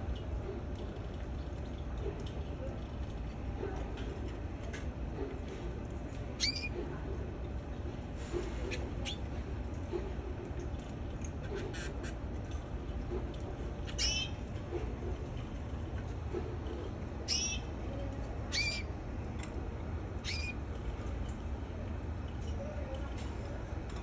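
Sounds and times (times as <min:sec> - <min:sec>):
canary chirping: 0:06.4 - 0:06.7, 0:13.9 - 0:14.4, 0:17.2 - 0:17.7, 0:18.5 - 0:18.9, 0:20.2 - 0:20.6.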